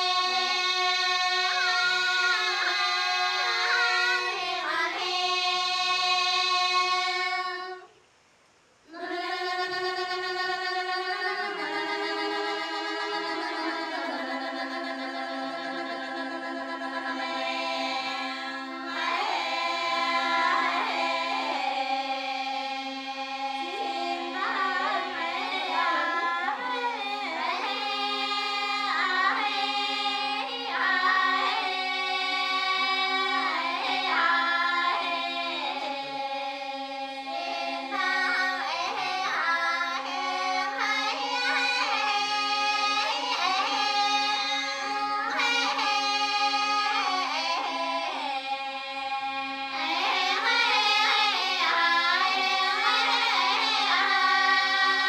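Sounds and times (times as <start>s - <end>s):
women's choir singing: 0.0s - 7.9s, 8.9s - 55.0s.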